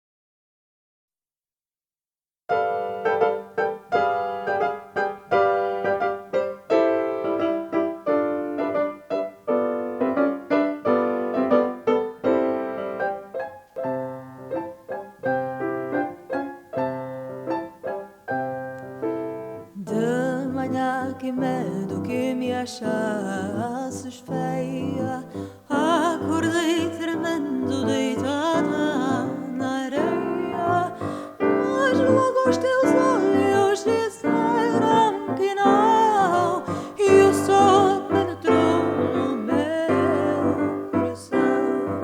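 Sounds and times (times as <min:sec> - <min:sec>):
solo piano: 0:02.5 - 0:42.0
woman singing: 0:19.8 - 0:42.0.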